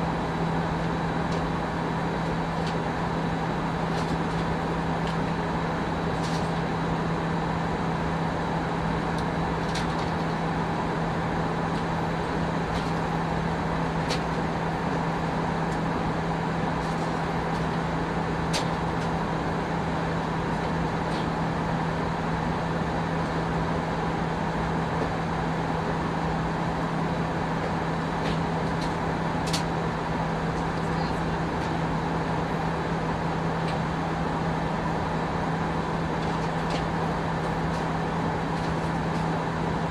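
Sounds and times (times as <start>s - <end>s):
aircraft cabin air rush: 16.7s - 17.8s, 35.8s - 39.9s.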